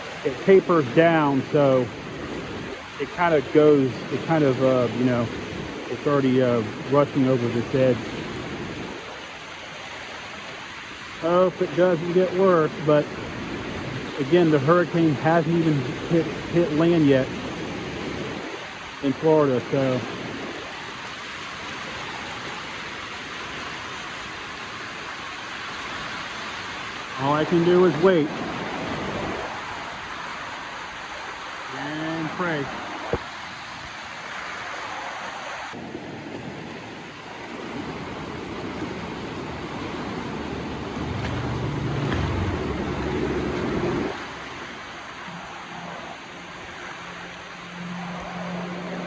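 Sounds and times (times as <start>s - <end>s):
water rushing over a wall: 0.0s - 49.0s
low rumble: 40.2s - 44.2s.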